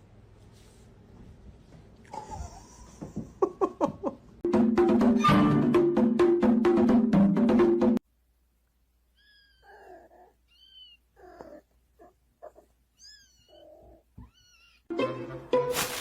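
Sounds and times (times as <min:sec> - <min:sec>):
cat meowing and chirping: 0:09.1 - 0:11.6, 0:12.5 - 0:14.9.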